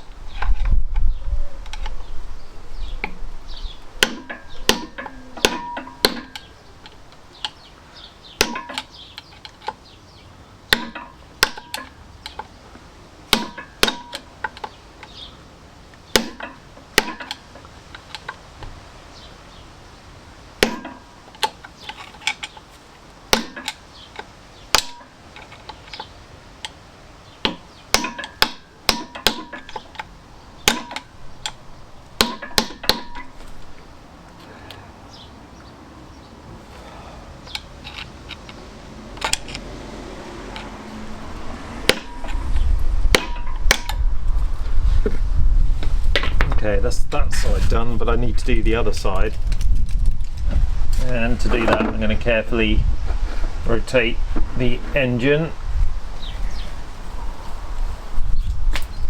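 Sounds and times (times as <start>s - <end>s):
hammer striking metal: 4.0s - 6.5s, 8.4s - 8.9s, 10.7s - 11.9s, 13.3s - 14.3s, 16.2s - 17.4s, 20.6s - 21.1s, 27.5s - 29.8s, 30.6s - 31.1s, 32.2s - 33.4s, 41.8s - 42.4s, 43.1s - 44.0s.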